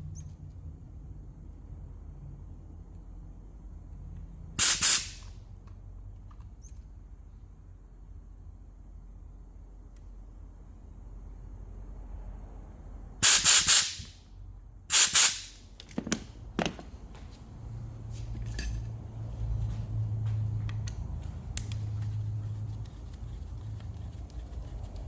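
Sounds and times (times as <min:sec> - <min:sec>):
pressurised spray hissing: 0:04.6 - 0:05.2, 0:13.2 - 0:14.0, 0:14.9 - 0:15.5
low steady hum: 0:05.2 - 0:13.2, 0:15.6 - 0:25.0.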